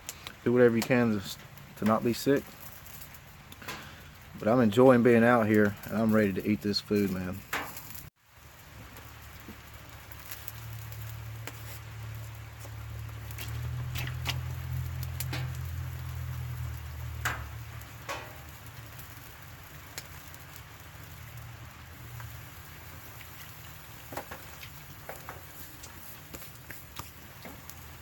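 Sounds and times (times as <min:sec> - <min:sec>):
campfire popping: 0:00.0 - 0:28.0
steady rain: 0:00.0 - 0:28.0
low rumble: 0:10.5 - 0:19.5.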